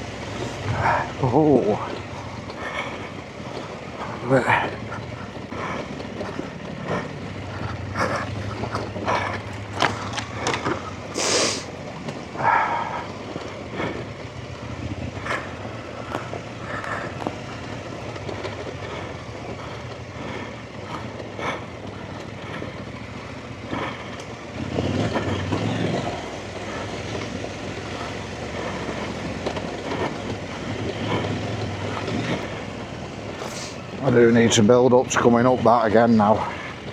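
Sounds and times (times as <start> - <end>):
knocks and clatter over rocks: 0.0 - 36.9
motorcycle engine running: 0.0 - 36.9
short hiss: 11.2 - 11.7.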